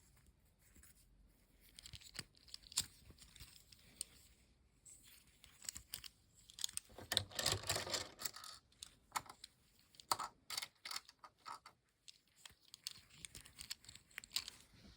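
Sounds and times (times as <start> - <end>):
plastic parts clicking and snapping: 1.6 - 4.2, 5.4 - 14.7
rustling: 11.9 - 14.9.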